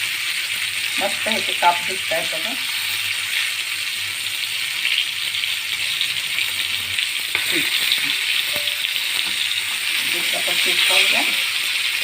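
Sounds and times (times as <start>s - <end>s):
fish sizzling in frying pan: 0.0s - 12.0s.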